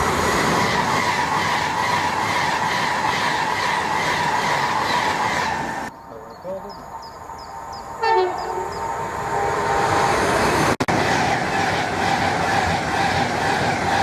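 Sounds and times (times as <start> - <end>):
train wheels rushing on rail: 0.0 - 14.0
train horn blast: 8.0 - 10.0.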